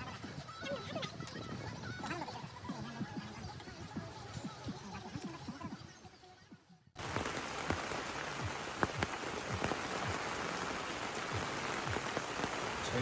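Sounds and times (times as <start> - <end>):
heavy rain pattering: 7.0 - 13.0.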